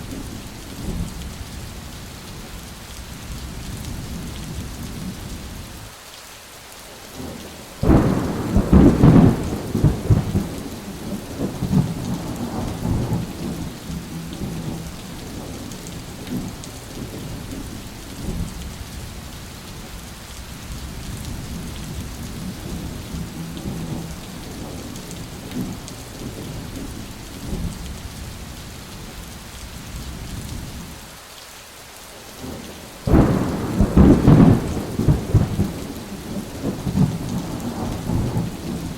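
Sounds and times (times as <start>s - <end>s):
steady rain falling: 0.0s - 38.9s
thunderclap rumbling: 7.8s - 17.5s, 22.2s - 27.8s, 32.4s - 38.9s.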